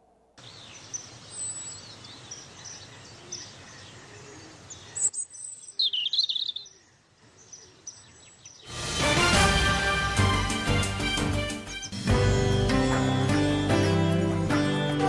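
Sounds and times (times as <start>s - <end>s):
birds chirping and whistling: 0.4s - 8.7s, 11.7s - 14.0s
loud music: 8.7s - 15.0s.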